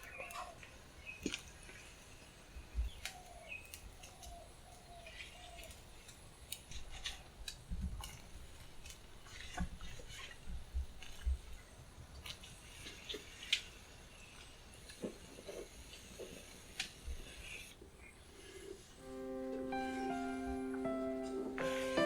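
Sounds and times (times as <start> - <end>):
soft keyboard music: 19.0 - 22.0.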